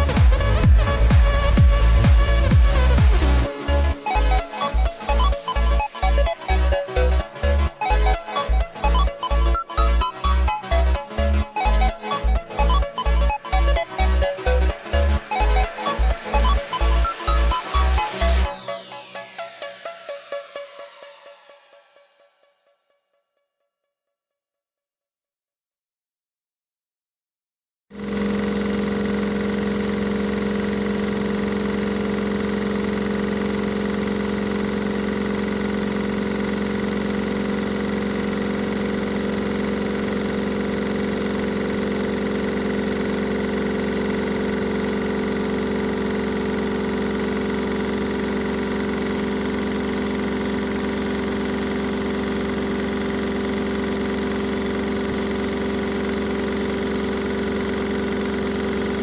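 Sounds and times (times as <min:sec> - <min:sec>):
washing machine motor humming: 0:28.0 - 0:59.0.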